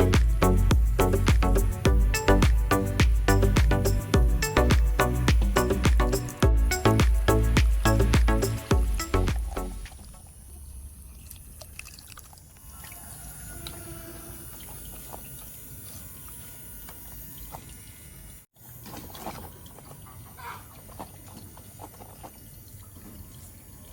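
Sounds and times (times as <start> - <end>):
water trickling and dripping: 6.7 - 16.0, 19.0 - 23.9.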